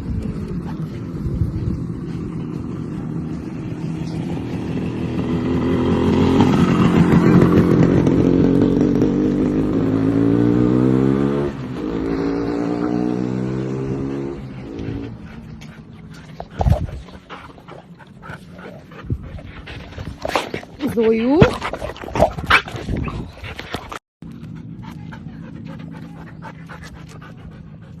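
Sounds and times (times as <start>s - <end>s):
motorcycle engine accelerating: 0.0s - 17.4s.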